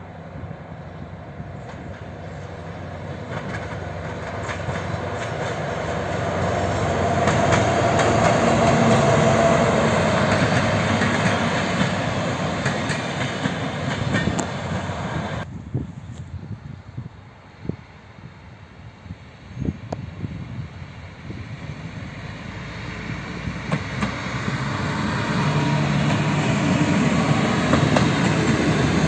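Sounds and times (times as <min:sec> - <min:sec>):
diesel locomotive passing: 0:00.0 - 0:15.7, 0:16.4 - 0:29.0
wheels clicking over rail joints: 0:03.1 - 0:14.9, 0:23.5 - 0:25.3, 0:26.0 - 0:29.0.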